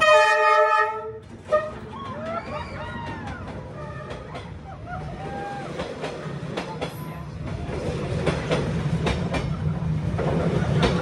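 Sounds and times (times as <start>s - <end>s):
train horn toot: 0.0s - 1.8s
diesel locomotive rumbling past: 0.0s - 11.0s.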